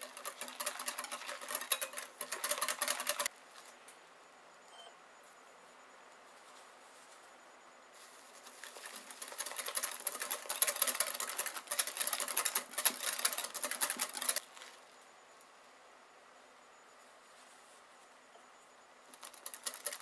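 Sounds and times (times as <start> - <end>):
whisk beating in a bowl: 0.0 - 3.3, 8.7 - 14.4, 19.1 - 20.0.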